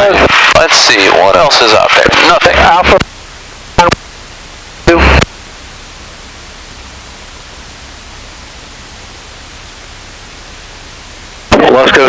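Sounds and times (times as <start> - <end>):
radio intercom hiss: 0.0 - 3.1, 3.7 - 4.0, 4.8 - 5.4, 11.4 - 12.0.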